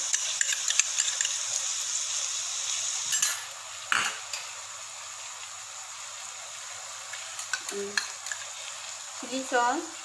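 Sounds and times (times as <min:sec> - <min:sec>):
food sizzling in a wok: 0:00.0 - 0:10.0
metal spoon clinking on bowl: 0:00.1 - 0:01.4.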